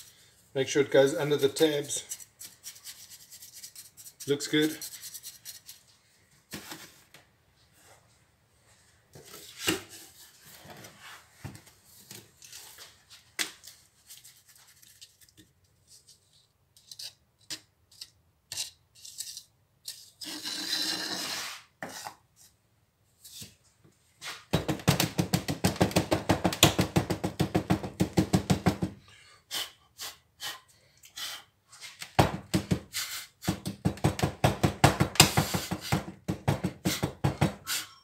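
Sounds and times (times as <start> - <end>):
scraping and rubbing wet mix: 1.8 - 6.0, 12.3 - 17.2, 18.6 - 22.6.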